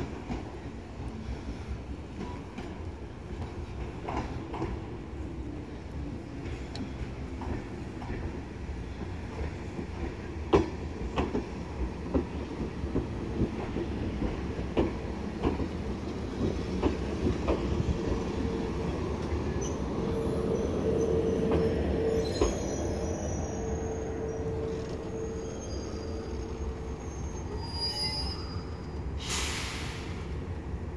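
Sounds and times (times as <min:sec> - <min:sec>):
train brakes squealing: 0:19.4 - 0:30.4.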